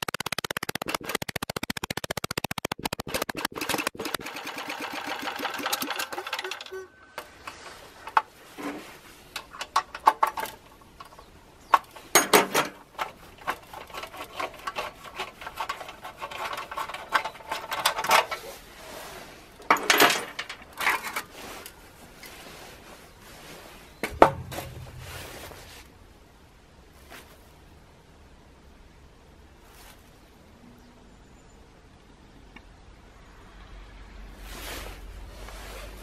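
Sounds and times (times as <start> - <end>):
heavy knock: 24.0 - 25.8.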